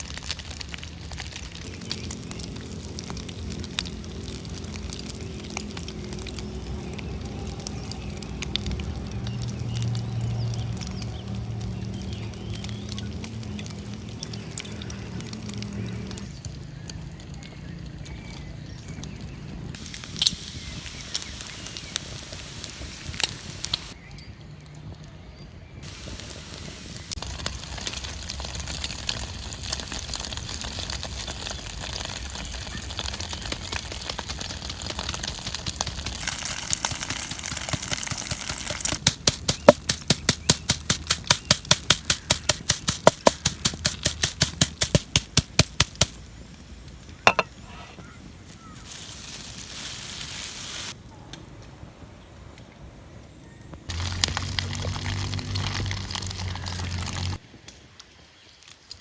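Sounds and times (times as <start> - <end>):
wood fire crackling: 0.0 - 24.0, 25.8 - 51.1, 53.9 - 59.0
food sizzling: 19.8 - 24.0, 25.8 - 46.1, 47.2 - 47.7, 48.6 - 51.0, 53.9 - 57.4
steady hiss: 19.8 - 24.0, 25.8 - 27.5, 48.5 - 51.0.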